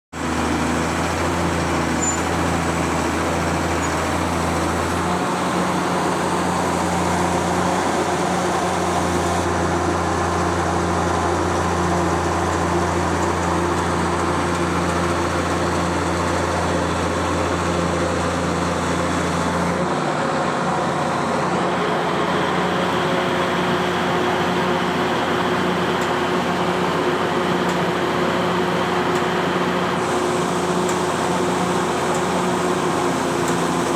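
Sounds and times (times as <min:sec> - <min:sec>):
road traffic noise: 0:00.1 - 0:33.9
truck engine droning: 0:00.2 - 0:33.9.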